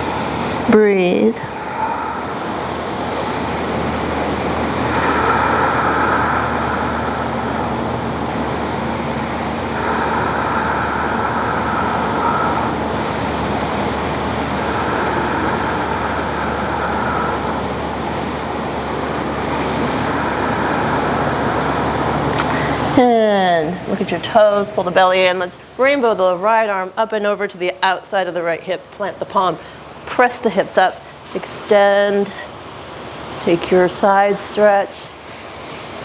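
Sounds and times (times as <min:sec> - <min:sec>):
wind: 0:00.0 - 0:25.9
ocean surf: 0:01.5 - 0:22.9.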